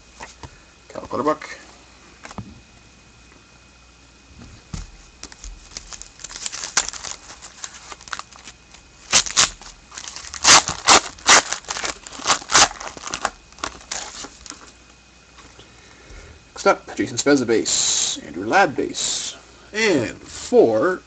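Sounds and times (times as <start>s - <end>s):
cards rustling: 5.2s - 14.8s
foil wrapper crinkling and ripping: 5.2s - 14.8s.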